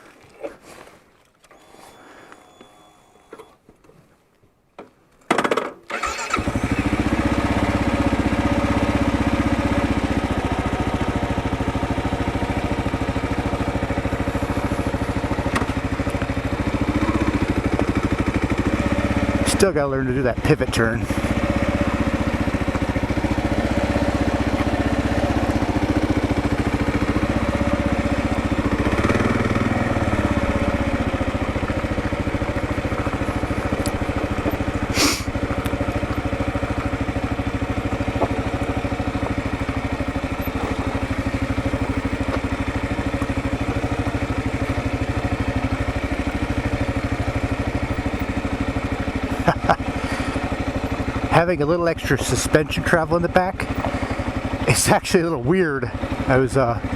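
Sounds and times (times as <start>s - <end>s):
motorcycle engine running: 5.9s - 56.9s
short sharp hiss: 34.9s - 35.3s.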